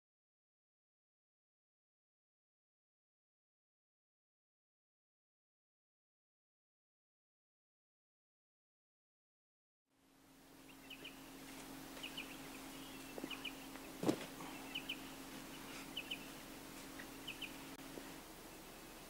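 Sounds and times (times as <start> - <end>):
steady low hum: 9.9 - 19.0
bird chirping: 10.5 - 19.0.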